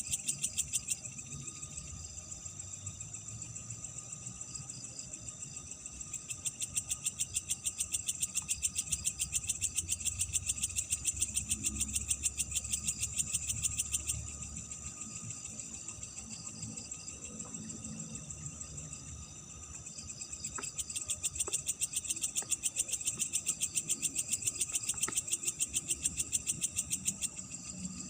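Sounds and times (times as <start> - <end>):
insect chorus high drone: 0.0 - 28.0
insect pulsing trill: 0.0 - 28.0.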